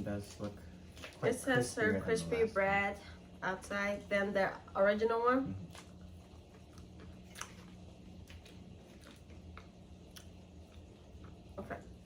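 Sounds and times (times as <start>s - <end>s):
chewing crispy chicken: 5.5s - 12.0s.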